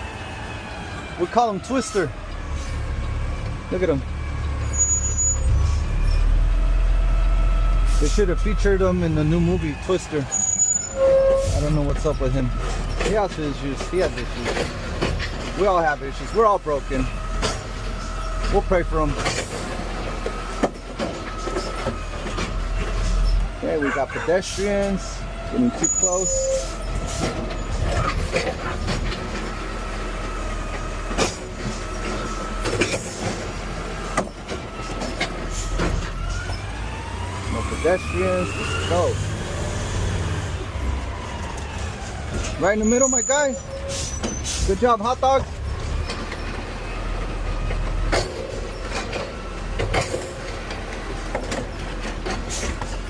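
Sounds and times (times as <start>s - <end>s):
diesel engine humming: 0.0s - 53.0s
truck knocks and rattles: 11.8s - 23.6s, 25.6s - 36.7s, 44.2s - 53.0s.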